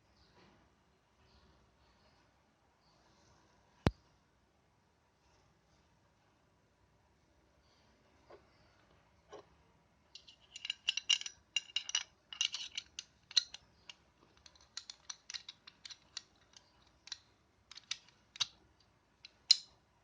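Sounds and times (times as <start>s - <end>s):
pistol parts clicking and rattling: 10.2s - 19.8s.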